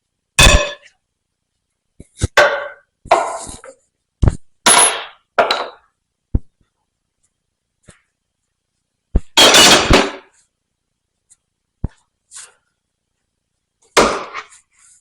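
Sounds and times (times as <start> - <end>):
metal-on-metal knocks and clangs: 0.4 - 0.9, 4.7 - 5.8, 9.2 - 10.3.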